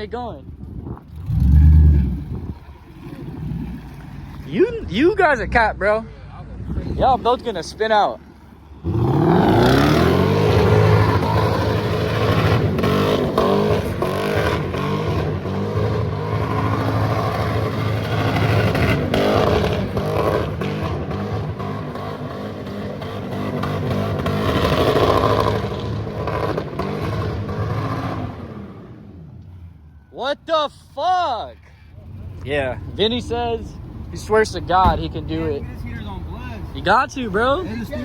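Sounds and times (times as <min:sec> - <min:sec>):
car engine revving: 0:06.8 - 0:29.0.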